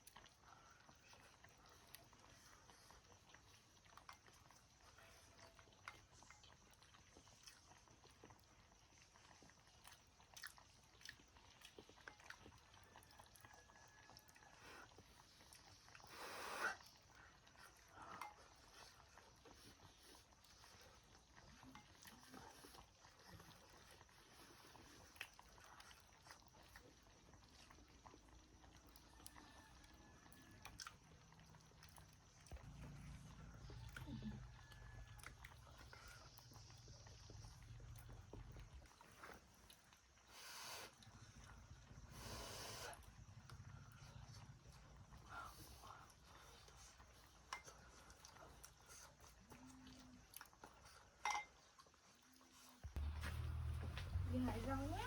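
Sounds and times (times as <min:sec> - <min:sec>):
low hum: 0:53.0 - 0:55.0.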